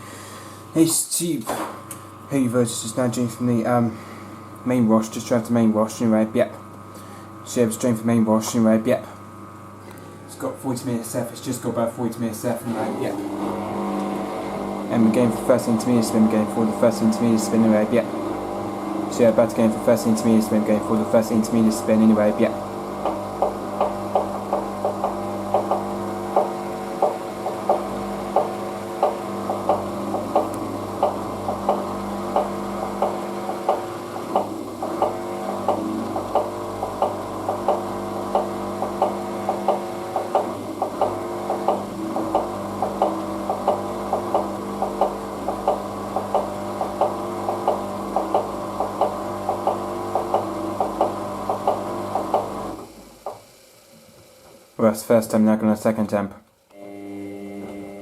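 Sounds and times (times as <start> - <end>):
washing machine spinning: 12.5 - 53.4, 56.8 - 58.0
knocks of washing machine drum: 23.0 - 37.8.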